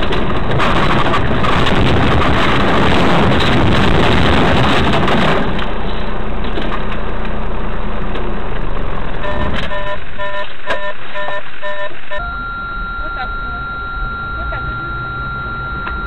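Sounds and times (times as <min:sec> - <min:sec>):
road and vehicle noise: 0:00.0 - 0:16.0
rapid electronic beeping: 0:09.2 - 0:16.0
steady high tone: 0:09.2 - 0:16.0.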